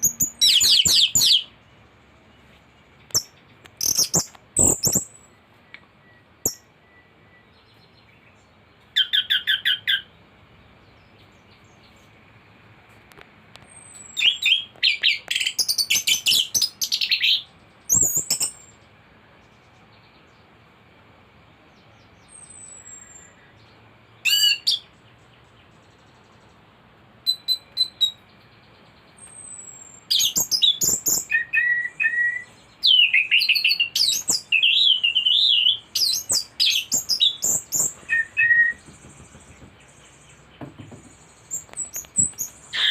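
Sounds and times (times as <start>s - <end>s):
faint steady high tone: 4.6s - 7.7s.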